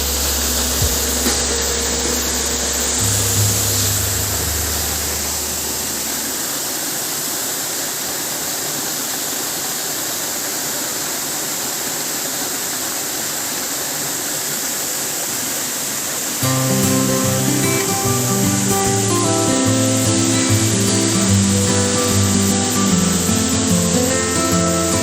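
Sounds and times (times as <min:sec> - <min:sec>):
low hum: 0:00.0 - 0:06.9
waterfall rushing: 0:00.0 - 0:25.0.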